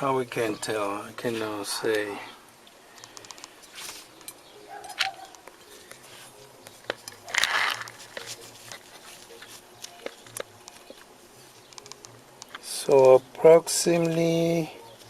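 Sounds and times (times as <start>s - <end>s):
small parts clicking: 6.9s - 13.2s.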